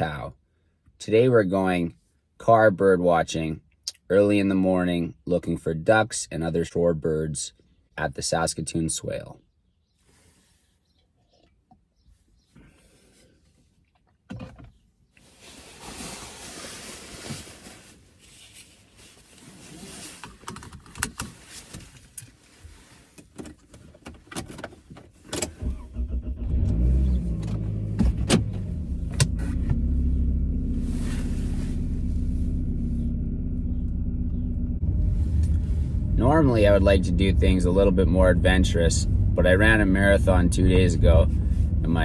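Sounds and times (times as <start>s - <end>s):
car engine running: 25.6s - 42.0s.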